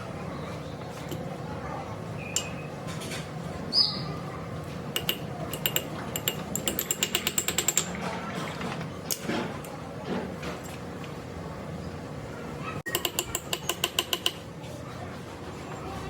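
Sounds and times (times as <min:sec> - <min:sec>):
metal tools clicking and clinking: 0:05.0 - 0:08.0.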